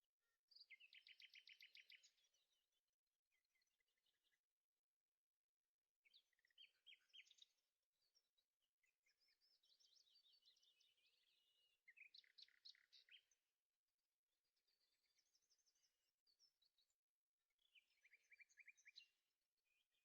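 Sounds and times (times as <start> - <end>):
faint birdsong: 0.0 - 20.0.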